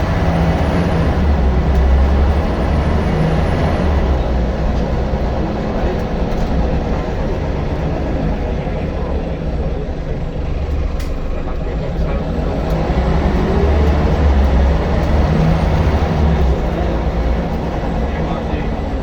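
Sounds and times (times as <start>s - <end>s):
bus engine droning: 0.0s - 19.0s.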